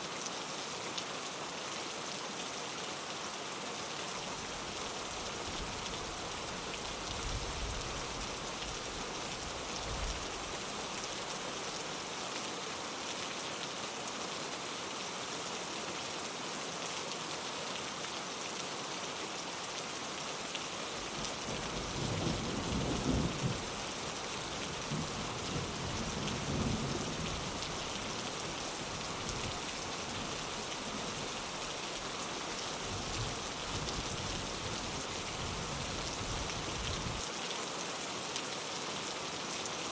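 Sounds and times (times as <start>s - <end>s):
rain pattering on a window: 20.4s - 39.9s
thunder rumbling: 22.0s - 23.7s.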